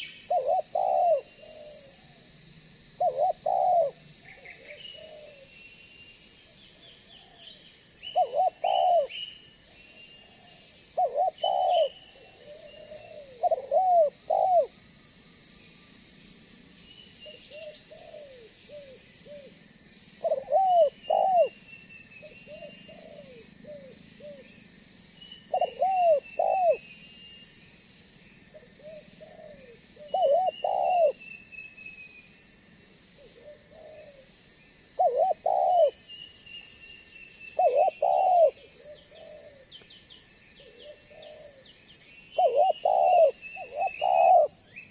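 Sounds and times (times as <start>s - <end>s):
dove cooing: 0.0s - 2.2s, 3.0s - 5.5s, 8.1s - 9.1s, 10.2s - 14.8s, 17.2s - 19.6s, 20.2s - 21.6s, 22.5s - 24.5s, 25.5s - 26.8s, 28.5s - 31.2s, 33.2s - 34.3s, 34.9s - 36.0s, 37.6s - 39.8s, 40.6s - 41.7s, 42.4s - 44.6s
small birds chirping: 3.0s - 14.7s, 20.2s - 27.5s, 28.6s - 31.5s, 35.0s - 44.9s.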